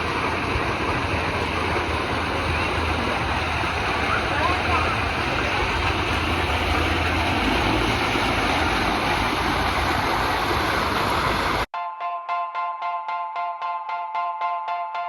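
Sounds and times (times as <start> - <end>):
rushing water: 0.0 - 11.7.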